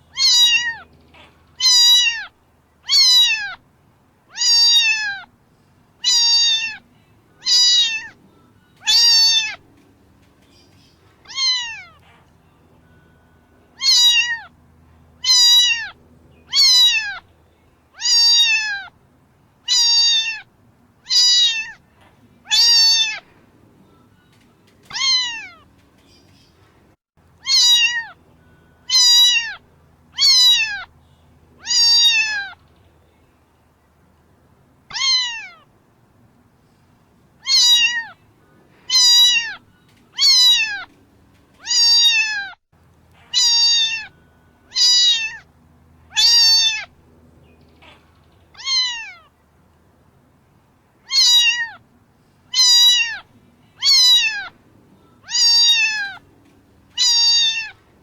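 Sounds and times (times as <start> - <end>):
cat meowing: 0.1 - 3.6, 4.3 - 5.3, 6.0 - 8.2, 8.8 - 9.6, 11.3 - 12.1, 13.8 - 14.5, 15.2 - 17.2, 18.0 - 18.9, 19.6 - 21.8, 22.5 - 23.2, 24.9 - 25.6, 27.4 - 28.2, 28.9 - 29.6, 30.2 - 30.9, 31.6 - 32.6, 34.9 - 35.7, 37.4 - 38.2, 38.9 - 40.9, 41.6 - 42.6, 43.2 - 44.1, 44.7 - 45.5, 46.1 - 46.9, 48.6 - 49.3, 51.0 - 51.8, 52.5 - 54.6, 55.2 - 56.2, 57.0 - 57.8.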